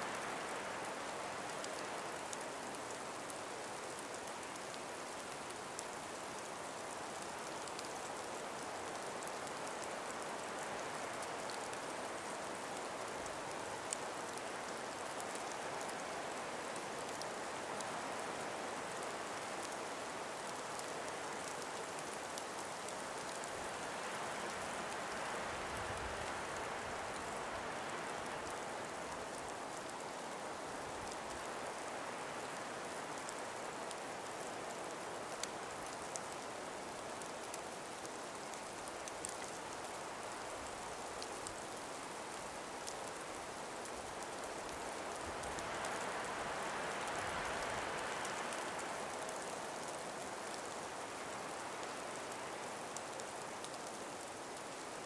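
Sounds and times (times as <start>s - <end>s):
breeze through trees: 0.0s - 55.0s
faint ticks: 18.9s - 55.0s.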